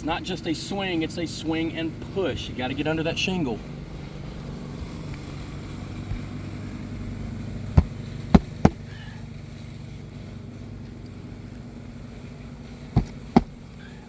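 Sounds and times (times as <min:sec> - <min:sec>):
hammer knocks on roof shingles: 0:07.8 - 0:08.9, 0:13.0 - 0:13.6.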